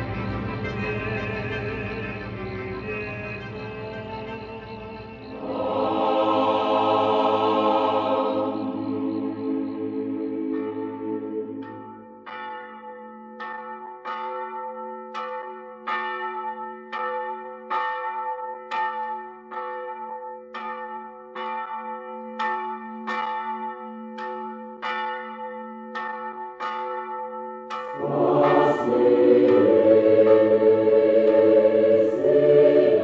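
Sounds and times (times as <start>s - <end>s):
church bells ringing: 0.0s - 33.0s
choral singing: 4.6s - 12.2s, 27.8s - 33.0s.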